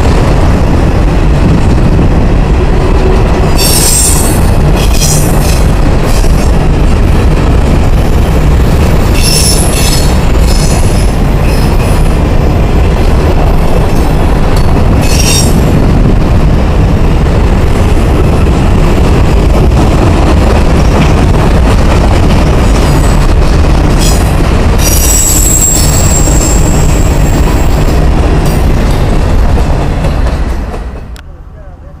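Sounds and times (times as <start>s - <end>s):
freight train wheels rumbling: 0.0s - 32.0s
wheel squeals: 24.8s - 26.9s.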